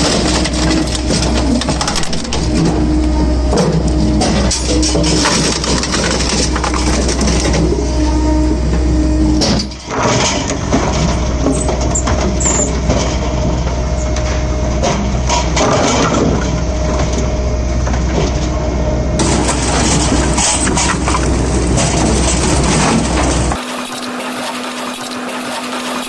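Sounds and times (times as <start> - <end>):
firewood processor motor hum: 0.0 - 26.0.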